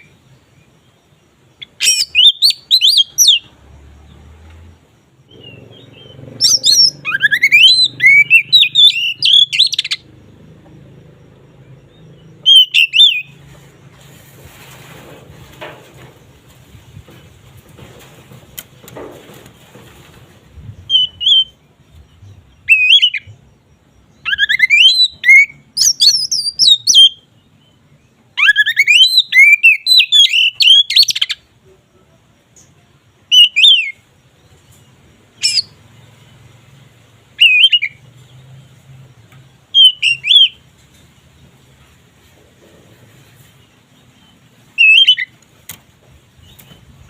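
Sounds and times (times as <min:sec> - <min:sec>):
bird singing whistled phrases: 0:01.6 - 0:03.5, 0:05.3 - 0:10.0, 0:12.4 - 0:13.4, 0:20.8 - 0:21.6, 0:22.6 - 0:23.4, 0:24.2 - 0:27.3, 0:28.4 - 0:31.4, 0:33.3 - 0:34.0, 0:37.4 - 0:38.0, 0:39.7 - 0:40.6, 0:44.8 - 0:45.3.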